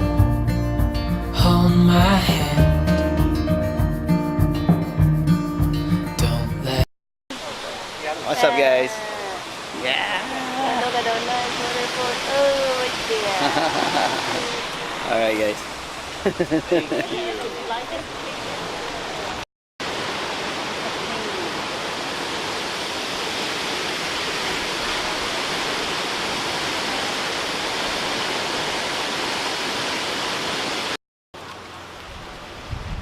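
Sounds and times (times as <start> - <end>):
waterfall rushing: 7.3 - 32.7.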